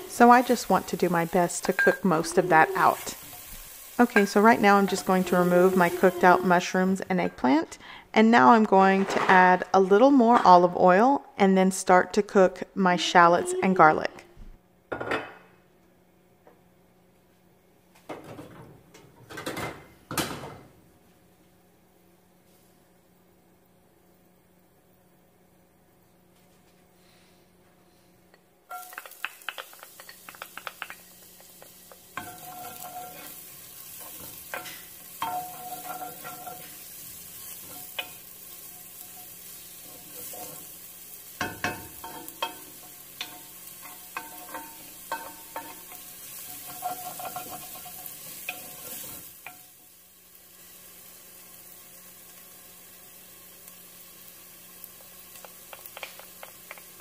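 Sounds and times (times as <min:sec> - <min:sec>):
shallots sizzling in hot oil: 0:00.0 - 0:08.0, 0:28.7 - 0:57.0
wooden spoon scraping and tapping pot: 0:28.7 - 0:36.8, 0:41.4 - 0:49.6, 0:55.0 - 0:57.0.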